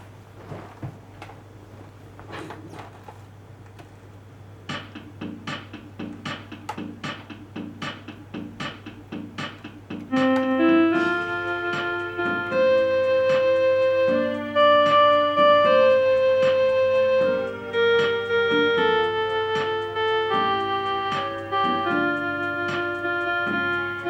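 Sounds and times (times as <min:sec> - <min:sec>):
soft keyboard chords: 0:04.0 - 0:24.0
drum machine beat: 0:04.5 - 0:24.0
electric piano melody: 0:08.6 - 0:24.0.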